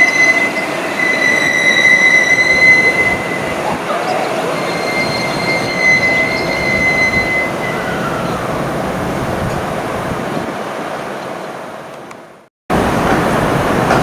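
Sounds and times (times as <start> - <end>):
high wheel squeal: 0.0 - 10.3
train wheels rumbling on rail: 0.0 - 10.6, 12.7 - 14.0.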